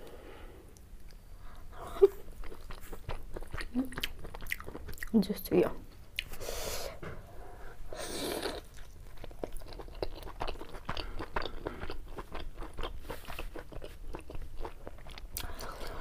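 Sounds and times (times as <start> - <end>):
chewing with wet mouth clicks: 2.2 - 5.2, 8.5 - 16.0.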